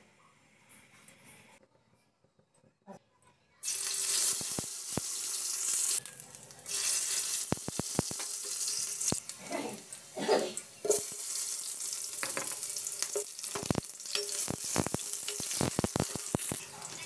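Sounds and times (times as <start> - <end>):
ginger and garlic sizzling in oil: 3.6 - 17.0.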